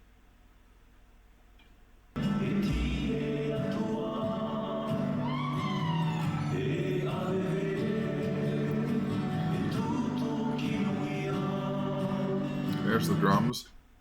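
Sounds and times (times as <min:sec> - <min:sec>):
group singing with music: 0:02.2 - 0:13.0.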